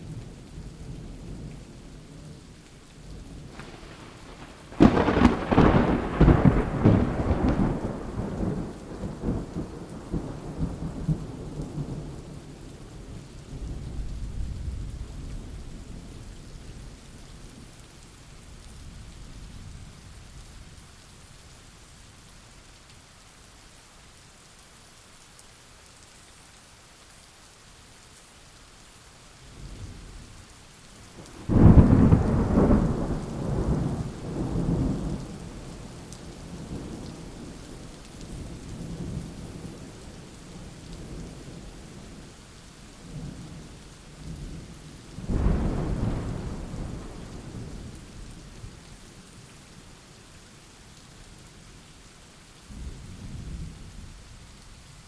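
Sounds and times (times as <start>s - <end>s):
rain hissing: 0.0s - 22.3s, 27.0s - 55.0s
rolling thunder: 3.4s - 12.4s, 31.2s - 41.6s, 45.2s - 48.8s
loud thunderclap: 3.5s - 10.7s, 31.3s - 35.8s, 45.2s - 47.8s.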